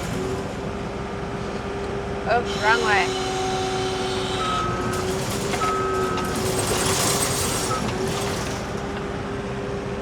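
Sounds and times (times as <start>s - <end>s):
diesel engine under load: 0.0s - 10.0s
backup alarm beeps: 4.3s - 8.0s.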